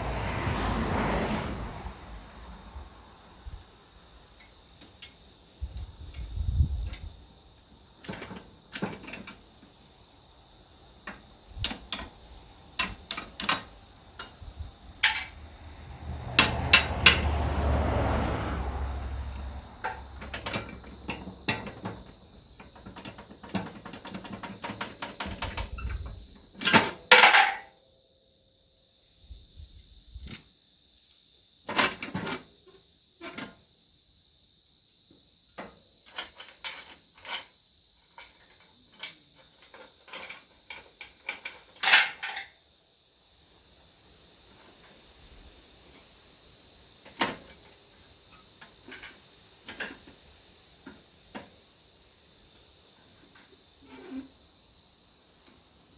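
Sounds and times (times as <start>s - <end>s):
metal tools clinking: 15.0s - 15.4s, 26.6s - 27.6s, 38.2s - 42.5s.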